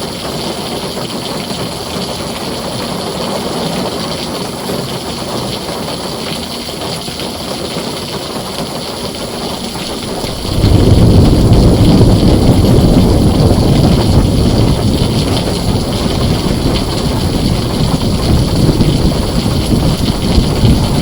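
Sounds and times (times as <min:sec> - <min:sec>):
heavy rain on a tin roof: 0:00.0 - 0:21.0
low rumble: 0:09.2 - 0:21.0.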